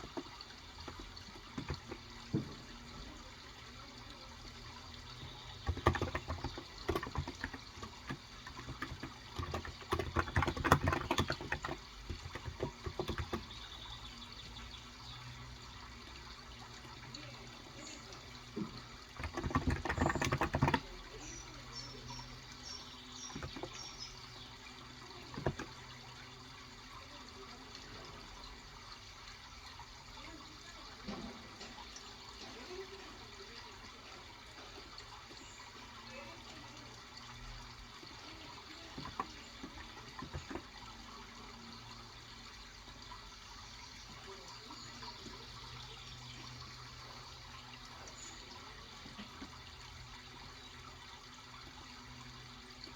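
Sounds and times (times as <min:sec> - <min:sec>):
birds chirping: 0:00.0 - 0:52.9
water trickling: 0:00.0 - 0:52.9
keyboard keystrokes: 0:05.6 - 0:13.5, 0:19.2 - 0:20.9.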